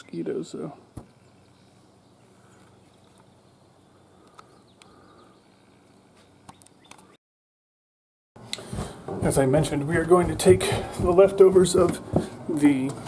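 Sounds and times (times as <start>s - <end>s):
distant bird chirps: 0.0s - 7.2s
small clicks: 6.2s - 7.1s.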